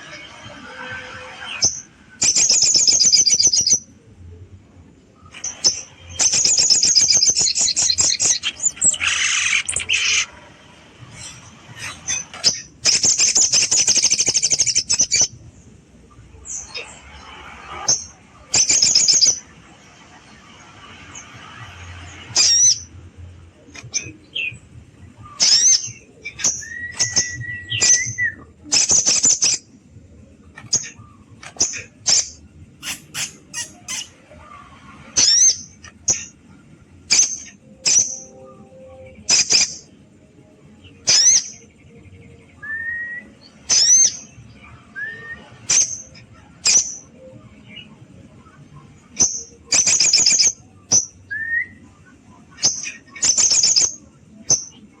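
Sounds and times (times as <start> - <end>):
bird whistles: 25.3 - 29.6, 31.6 - 34.2
bird calling sharply: 32.8 - 34.2.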